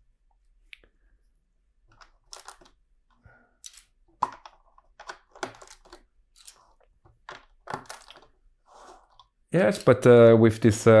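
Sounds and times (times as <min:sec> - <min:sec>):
plastic bricks clicking and rattling: 0:01.9 - 0:02.8, 0:03.6 - 0:08.4.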